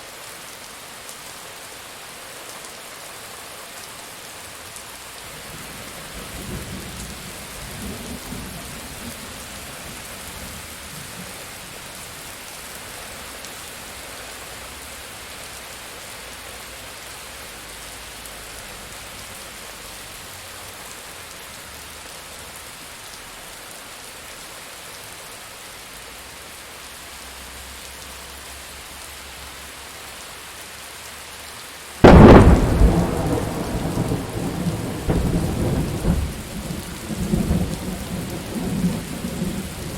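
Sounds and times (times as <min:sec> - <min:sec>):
steady rain: 0:00.0 - 0:39.9
distant thunder rolling: 0:32.0 - 0:39.9
loud close thunderclap: 0:32.0 - 0:39.9.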